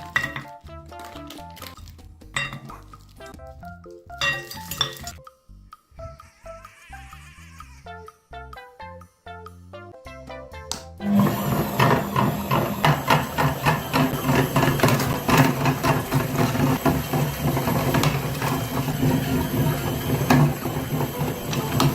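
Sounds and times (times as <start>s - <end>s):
music: 0.0s - 21.9s
small motor humming and clattering: 11.1s - 21.9s.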